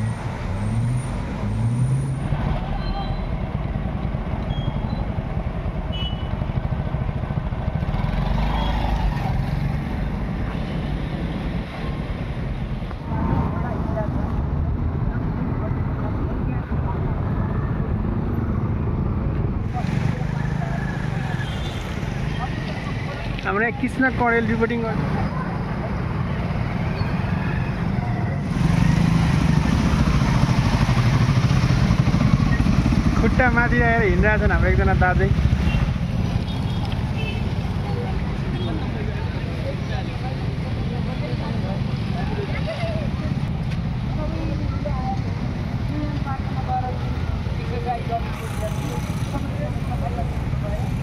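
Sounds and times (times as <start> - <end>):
traffic engines rumbling: 0.0 - 51.0
motorcycle engine running: 28.5 - 37.9.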